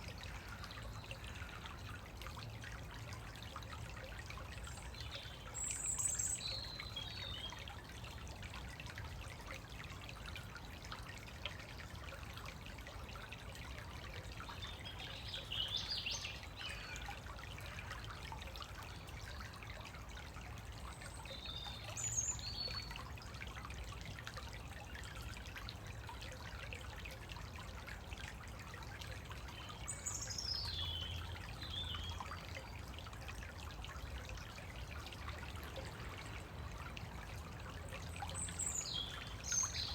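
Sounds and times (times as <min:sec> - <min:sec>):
stream trickling: 0:00.0 - 0:39.9
songbirds singing: 0:04.6 - 0:07.8, 0:14.4 - 0:18.2, 0:20.9 - 0:23.0, 0:29.4 - 0:32.9, 0:37.8 - 0:39.9.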